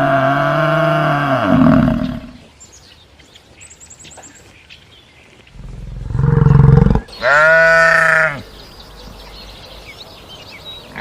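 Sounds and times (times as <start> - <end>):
large animal low call: 0.0 - 2.4, 5.6 - 8.4.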